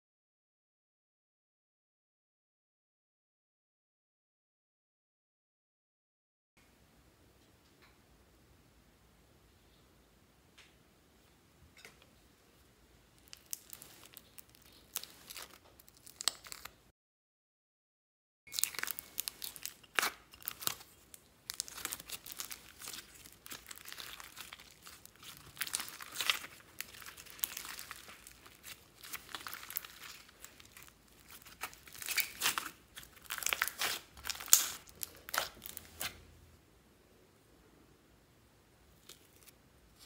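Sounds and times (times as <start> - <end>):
slime crackling and tearing: 13.2 - 16.8, 18.5 - 36.2.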